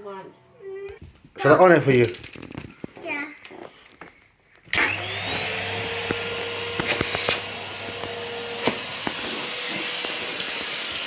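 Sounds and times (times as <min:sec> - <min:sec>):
vacuum cleaner motor whine: 0:04.7 - 0:11.0.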